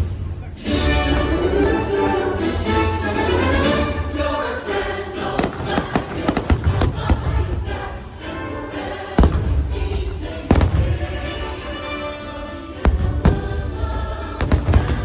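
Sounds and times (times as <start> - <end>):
orchestral show music: 0.0 - 15.0
fireworks bursting: 3.6 - 15.0.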